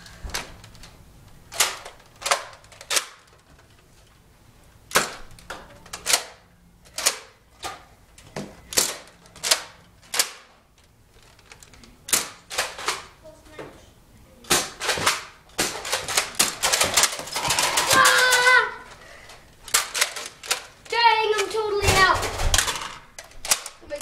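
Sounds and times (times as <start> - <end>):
dart blasters clacking: 14.5 - 18.6.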